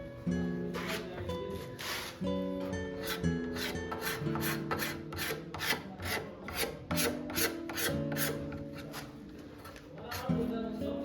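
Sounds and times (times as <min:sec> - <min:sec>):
background music with held notes: 0:00.0 - 0:05.3
scraping strokes on wood: 0:00.7 - 0:02.2, 0:03.0 - 0:10.4.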